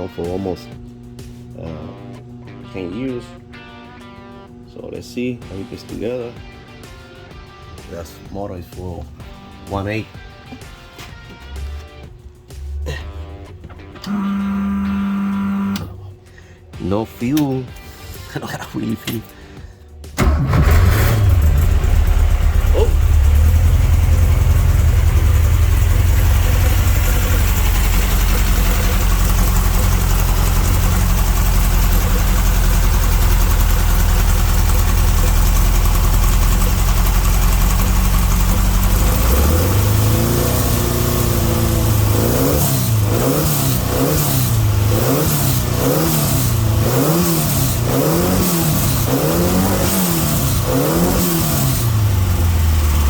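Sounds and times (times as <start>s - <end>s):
engine revving: 14.0s - 15.9s, 20.2s - 53.0s
car engine idling: 19.3s - 53.0s.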